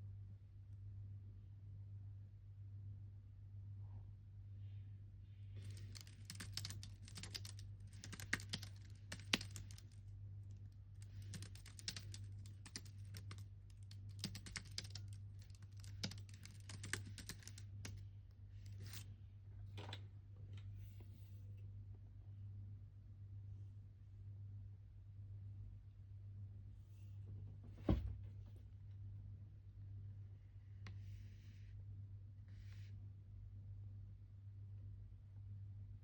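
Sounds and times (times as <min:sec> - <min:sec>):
typing on computer keyboard: 0:05.7 - 0:10.0, 0:11.0 - 0:18.0.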